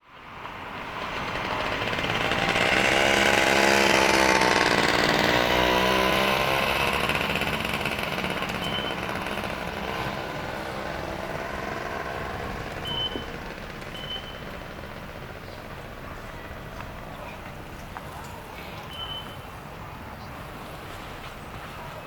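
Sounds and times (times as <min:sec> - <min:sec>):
subway train motor whine: 0:00.2 - 0:16.9.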